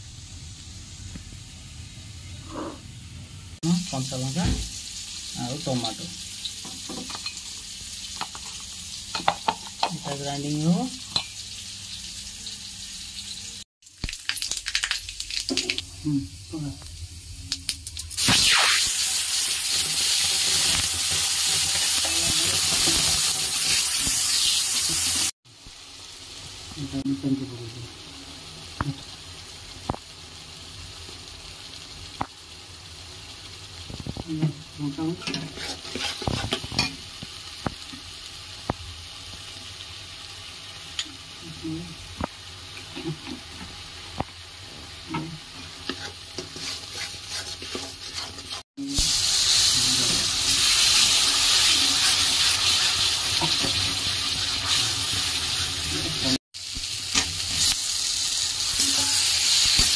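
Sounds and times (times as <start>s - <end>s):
paste sizzling in a pan: 3.8s - 59.9s
spatula scraping a metal pan: 35.2s - 36.9s, 45.8s - 48.6s.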